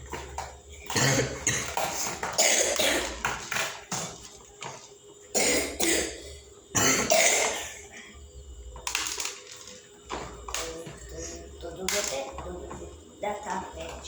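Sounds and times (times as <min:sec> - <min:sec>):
person coughing: 0:00.8 - 0:03.2, 0:05.3 - 0:08.2.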